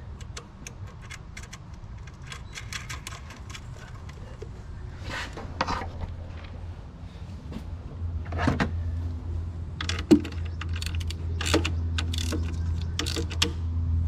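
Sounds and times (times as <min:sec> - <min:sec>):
hand tools clicking on metal: 0:00.0 - 0:04.5, 0:09.8 - 0:13.6
steady low hum: 0:00.0 - 0:14.0.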